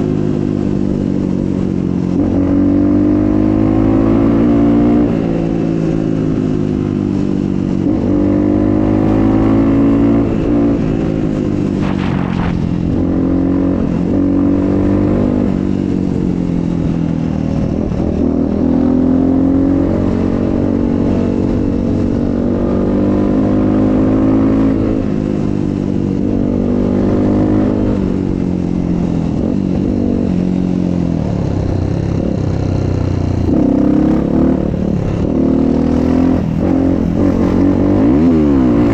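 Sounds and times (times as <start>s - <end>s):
motocross bike engine revving: 11.7s - 15.6s.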